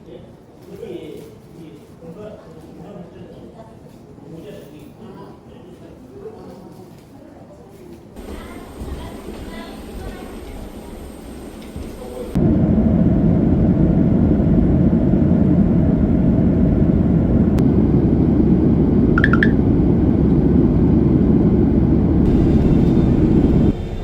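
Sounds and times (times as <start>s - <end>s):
short high chirp: 19.2s - 19.6s
vehicle interior rumble: 21.9s - 24.0s.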